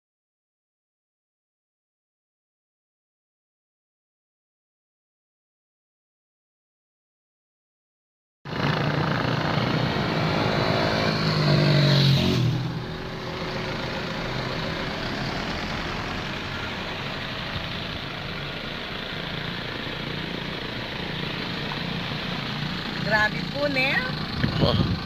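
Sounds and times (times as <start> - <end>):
engine revving: 8.5 - 25.0
street noise: 8.5 - 25.0
traffic roar: 8.5 - 25.0.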